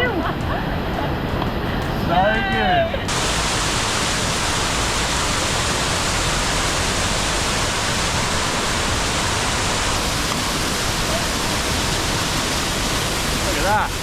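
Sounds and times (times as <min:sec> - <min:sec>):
waterfall rushing: 0:03.1 - 0:14.0.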